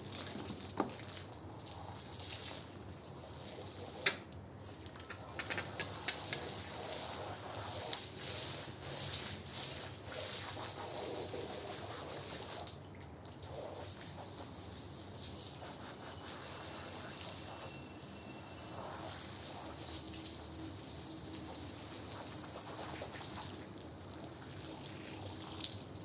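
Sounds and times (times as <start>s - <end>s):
water sloshing and trickling: 0.0s - 3.3s
sharp clicks: 5.1s - 6.4s.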